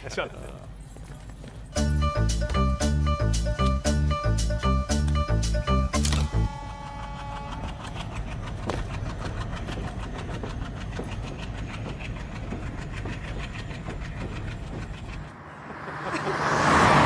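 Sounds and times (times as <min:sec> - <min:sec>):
train rumble: 0:06.3 - 0:17.0
wheels clickety-clack: 0:06.6 - 0:16.3.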